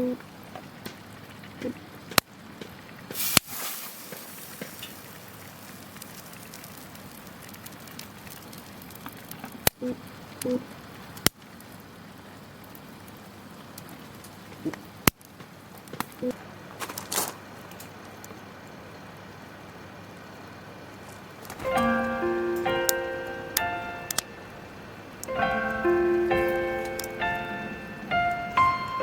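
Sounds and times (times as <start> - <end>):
campfire crackling: 0.7 - 9.7.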